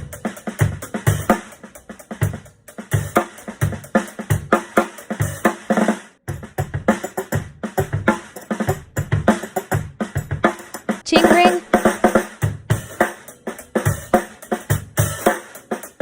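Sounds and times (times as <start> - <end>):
drum kit groove: 0.0 - 16.0.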